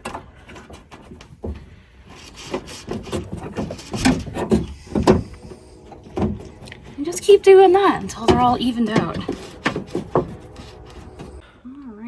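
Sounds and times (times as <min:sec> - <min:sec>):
metal clicks and knocks: 0:00.0 - 0:11.4.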